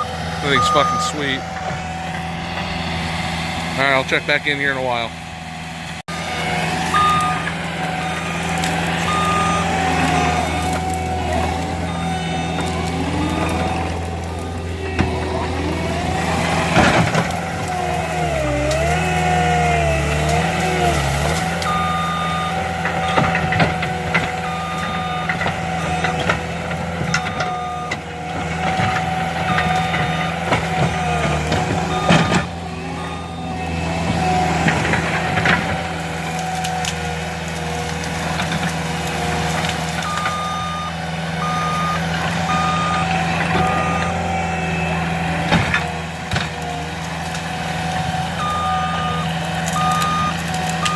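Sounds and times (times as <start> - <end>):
reversing alarm beeps: 0.0 - 1.4, 6.9 - 14.4, 21.6 - 23.5, 24.4 - 26.4, 27.0 - 28.0, 28.8 - 33.8, 40.0 - 44.8, 48.4 - 50.9
diesel engine running: 0.0 - 50.9.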